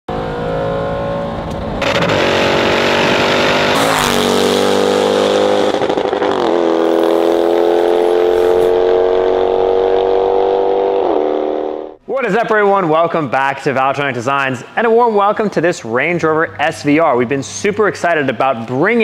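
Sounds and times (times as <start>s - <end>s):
car engine accelerating: 0.1s - 12.0s.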